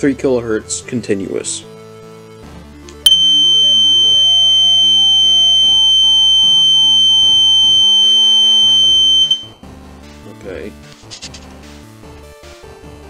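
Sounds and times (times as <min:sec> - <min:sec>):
faint background music: 0:00.0 - 0:05.6, 0:09.4 - 0:13.0
alarm horn high-pitched tone: 0:03.1 - 0:09.6.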